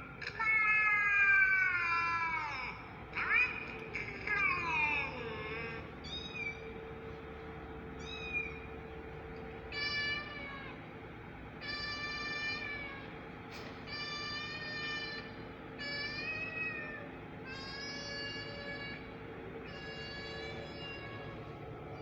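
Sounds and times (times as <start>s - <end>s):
cat meowing: 4.1s - 6.8s, 8.0s - 8.7s, 9.7s - 10.8s, 11.6s - 13.2s, 13.8s - 22.0s.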